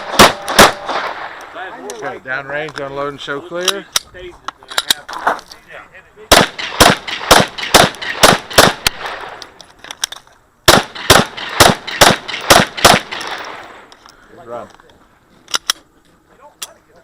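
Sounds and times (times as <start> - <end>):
rapid pistol shots with echo: 0.0 - 1.3, 6.3 - 9.4, 10.7 - 13.6.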